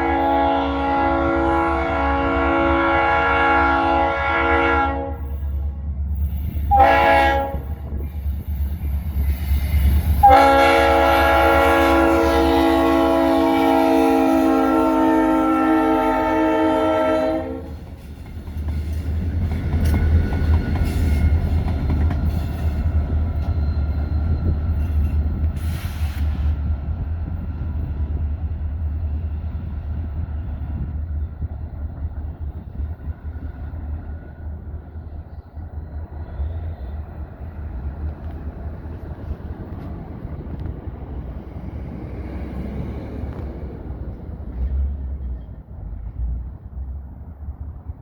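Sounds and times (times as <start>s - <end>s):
locomotive horn: 0.0s - 5.4s, 6.7s - 8.0s, 10.2s - 17.9s
diesel locomotives rumbling: 0.0s - 48.0s.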